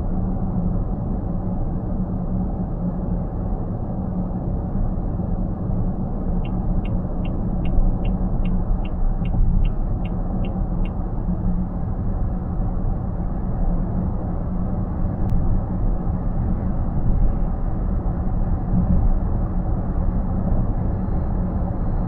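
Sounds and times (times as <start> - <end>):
high electronic ticks: 6.4 - 11.0.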